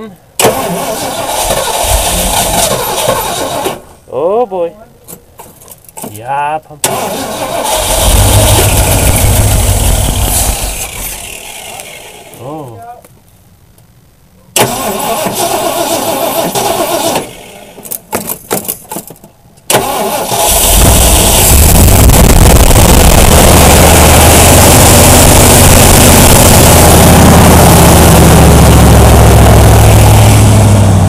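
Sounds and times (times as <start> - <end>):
engine cranking and running: 0.4 - 3.9, 6.8 - 12.4, 14.6 - 18.7, 19.7 - 31.0.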